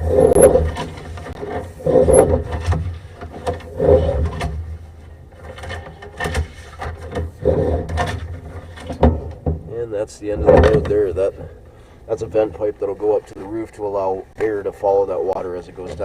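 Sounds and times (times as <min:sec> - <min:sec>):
steady low hum: 0:00.0 - 0:16.0
louder bumps: 0:07.3 - 0:11.6.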